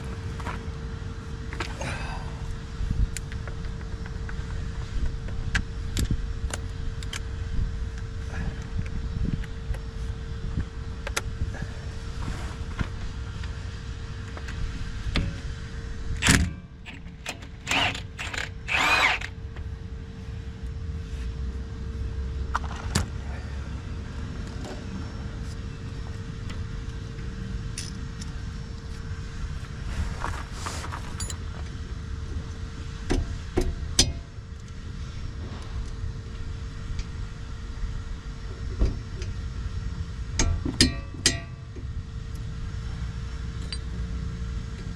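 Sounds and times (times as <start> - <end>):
steady low hum: 0.0 - 44.9
cordless power tool bursts: 17.6 - 19.3.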